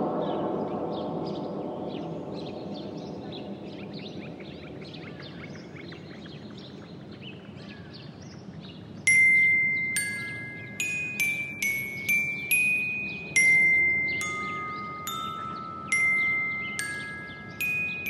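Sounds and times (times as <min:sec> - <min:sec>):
low background noise: 0:00.0 - 0:18.0
small birds chirping: 0:00.3 - 0:18.0
glockenspiel music: 0:09.1 - 0:18.0.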